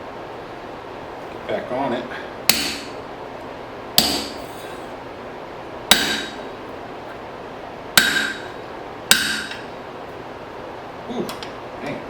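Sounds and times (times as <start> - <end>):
hammer ringing on punch: 2.5 - 3.0, 4.0 - 4.4, 5.9 - 6.4, 8.0 - 9.6.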